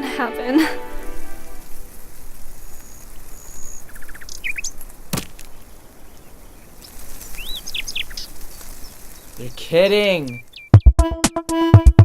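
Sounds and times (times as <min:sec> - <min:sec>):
small birds chirping: 0:00.0 - 0:11.1
sharp knock: 0:05.1 - 0:05.5.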